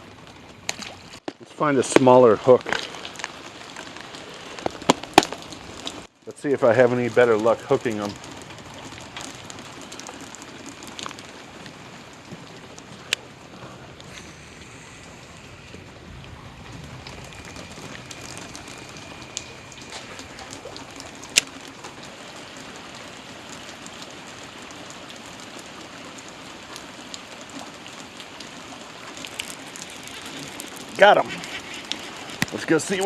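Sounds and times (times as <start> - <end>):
steady rain: 0.0 - 33.0
drops ticking: 0.2 - 25.2.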